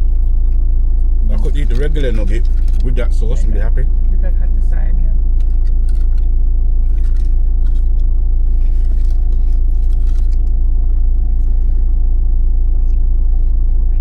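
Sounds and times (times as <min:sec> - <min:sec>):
faint rustles and clicks: 0:00.0 - 0:03.0, 0:05.4 - 0:11.9
vehicle engine idling: 0:00.0 - 0:14.0.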